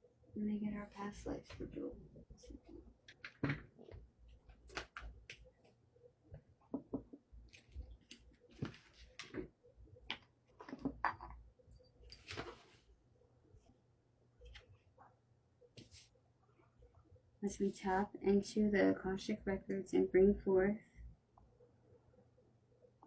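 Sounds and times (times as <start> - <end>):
faint small clicks and rustles: 7.4 - 13.8.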